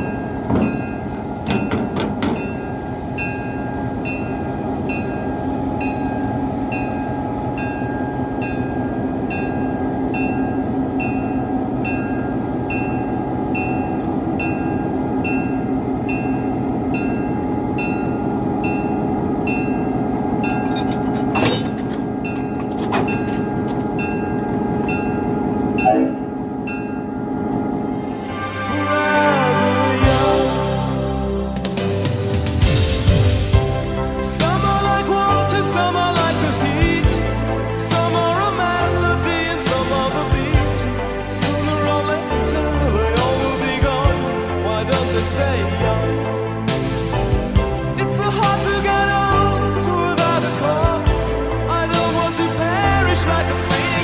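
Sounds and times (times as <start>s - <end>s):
bell striking: 0.0s - 27.7s
train engine drone: 0.0s - 54.0s.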